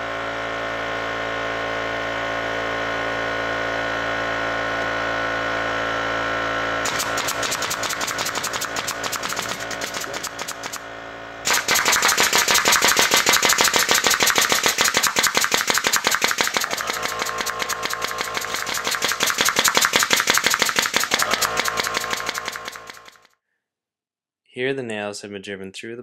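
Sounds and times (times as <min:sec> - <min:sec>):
nail gun firing rapidly: 0:06.8 - 0:23.3.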